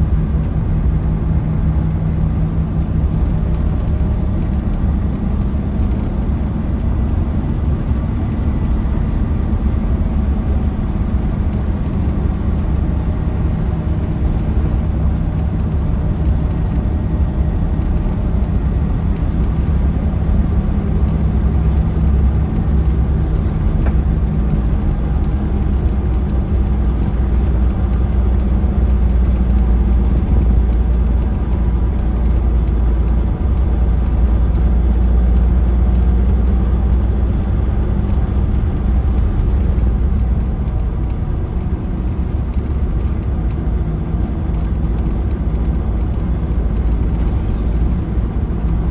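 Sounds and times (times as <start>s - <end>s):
bus engine droning: 0.0s - 48.9s
road noise: 0.0s - 48.9s.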